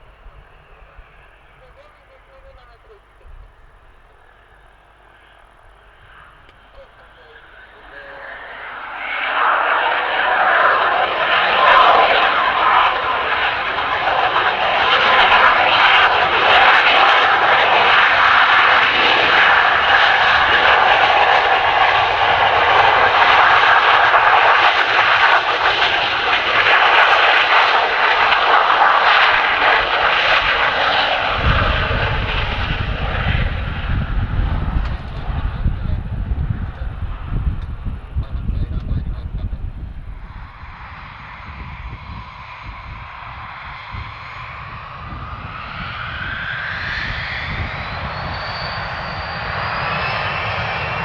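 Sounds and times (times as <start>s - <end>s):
deep low rumble: 0.0s - 17.6s, 29.2s - 44.1s
jet engines roaring: 0.0s - 51.0s.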